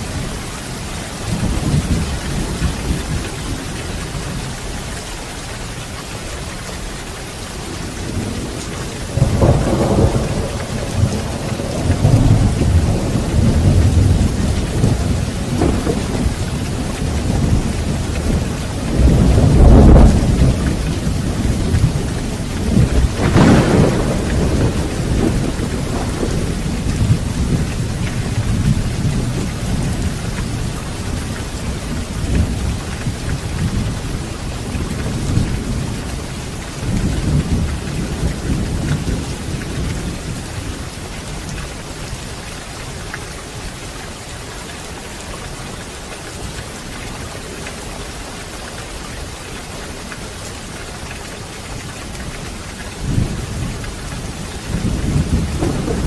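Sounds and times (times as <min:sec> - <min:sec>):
steady rain: 0:00.0 - 0:56.0
rolling thunder: 0:07.7 - 0:41.6, 0:53.0 - 0:56.0.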